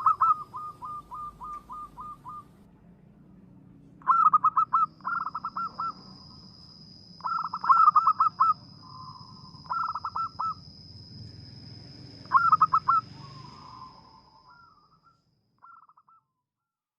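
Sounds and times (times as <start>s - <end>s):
dove cooing: 0.0s - 2.6s, 4.0s - 6.4s, 7.2s - 10.7s, 12.2s - 15.0s.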